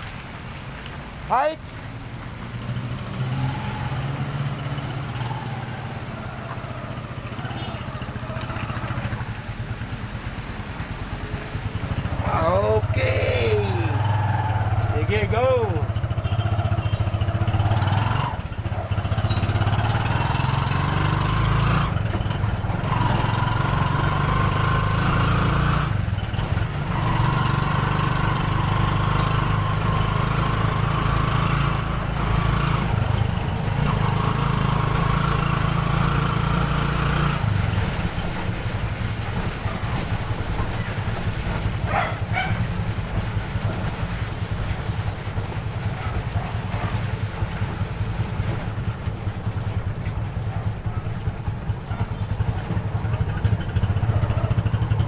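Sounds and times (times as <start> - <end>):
motorcycle engine under load: 13.7 - 55.0.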